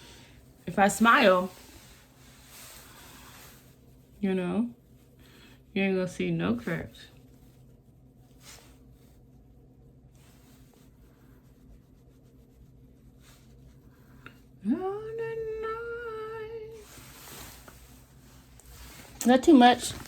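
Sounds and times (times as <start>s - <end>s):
woman humming: 14.6s - 17.0s.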